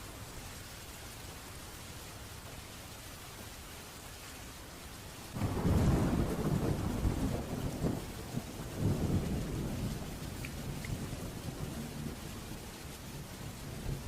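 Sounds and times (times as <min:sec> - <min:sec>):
steady rain: 0:00.0 - 0:14.0
thunder rumbling: 0:05.4 - 0:14.0.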